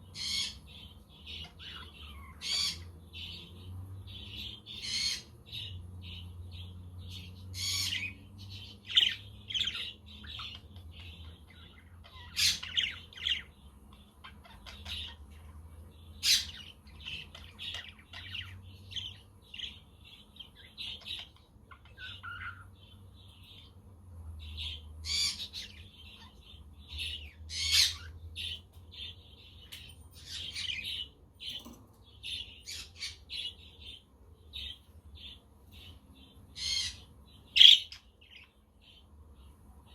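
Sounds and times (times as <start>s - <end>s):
budgerigars chirping: 0.0s - 23.8s, 24.4s - 29.6s, 30.2s - 39.1s
budgerigars squawking: 1.3s - 2.9s, 37.6s - 38.0s.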